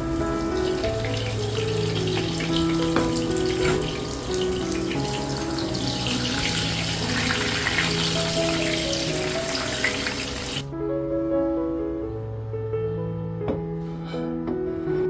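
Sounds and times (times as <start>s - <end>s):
water running from tap into sink: 0.0s - 10.6s
soft piano music: 0.0s - 15.0s.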